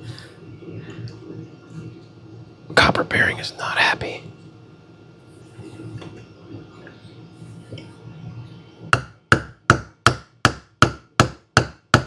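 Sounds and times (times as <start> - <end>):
hammer tapping on metal: 9.0 - 12.0.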